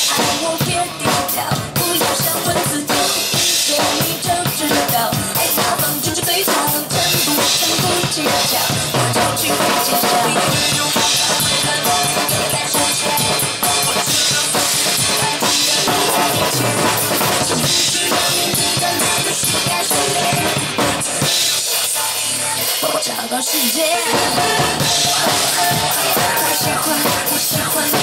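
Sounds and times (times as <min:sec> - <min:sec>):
pop band backing track: 0:00.0 - 0:28.0
bass drum and snare strokes: 0:24.0 - 0:28.0.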